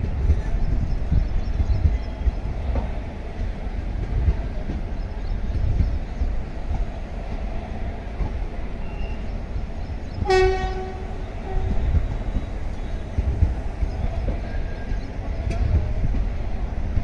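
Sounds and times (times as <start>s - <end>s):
train coaches rumbling past: 0.0s - 17.0s
locomotive horn: 10.2s - 11.9s.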